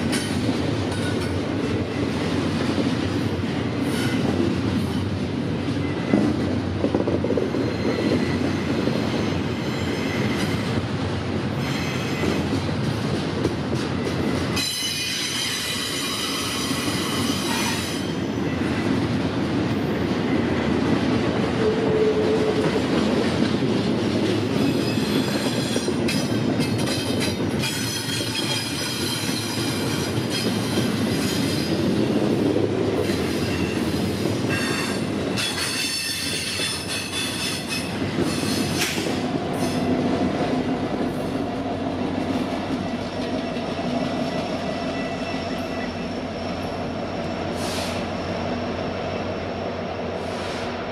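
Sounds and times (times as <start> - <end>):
train wheels rumbling on rails: 0.0 - 50.9
high-pitched wheel squeal: 7.5 - 10.6.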